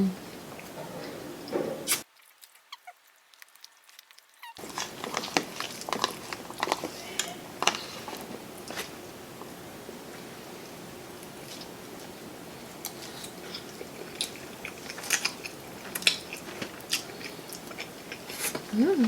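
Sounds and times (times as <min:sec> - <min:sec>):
chewing with lip smacks: 0:01.9 - 0:19.0.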